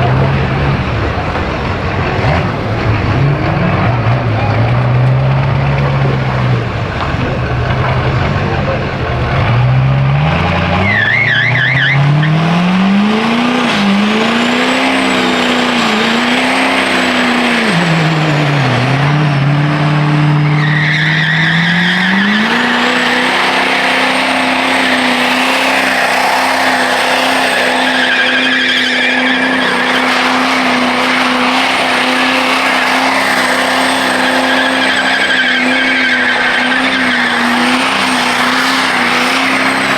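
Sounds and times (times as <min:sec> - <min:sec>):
truck engine revving: 0:00.0 - 0:39.9
tyres squealing: 0:06.5 - 0:12.4, 0:19.5 - 0:39.9.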